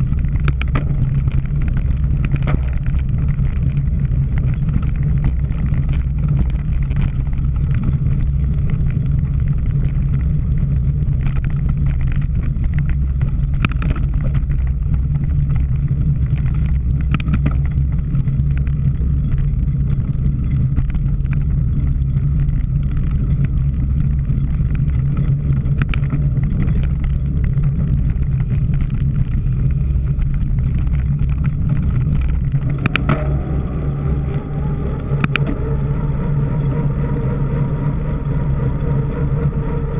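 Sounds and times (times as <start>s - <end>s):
bike clicks and rattles: 0.0s - 39.9s
wind rumbling on microphone: 0.0s - 39.9s.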